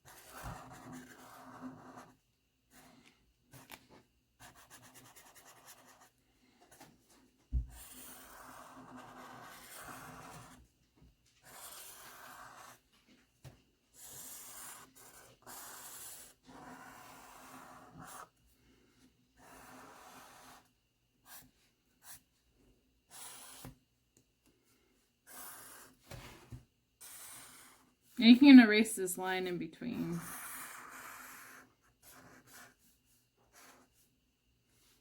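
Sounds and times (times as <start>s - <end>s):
pen scratching on paper: 0.0s - 3.0s, 4.4s - 6.8s, 7.6s - 10.6s, 11.4s - 12.8s, 13.9s - 18.3s, 19.4s - 22.2s, 23.1s - 23.8s, 25.2s - 26.4s, 27.0s - 27.9s, 29.8s - 34.0s.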